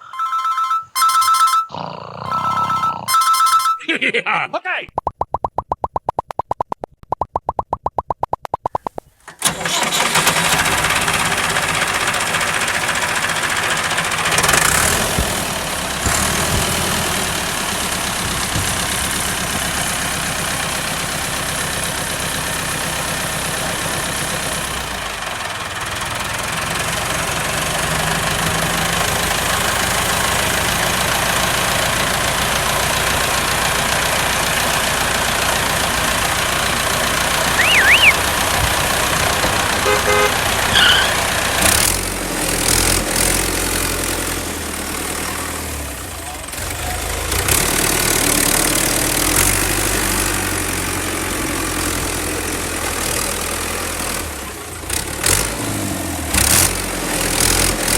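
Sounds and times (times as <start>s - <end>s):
warbling horn-like tone: 0.0s - 3.8s, 37.6s - 38.2s.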